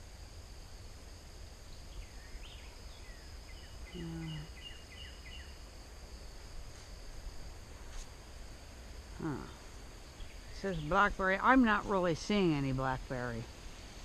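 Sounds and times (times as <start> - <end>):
high insect drone: 0.0 - 14.0
songbird chirping: 1.7 - 5.6, 9.2 - 13.5.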